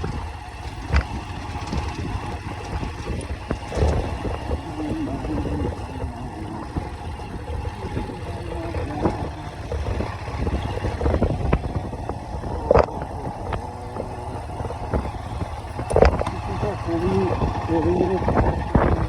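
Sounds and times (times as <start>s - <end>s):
knocks and rattles from bumps: 0.0s - 19.0s
vehicle engine rumbling: 0.0s - 19.0s.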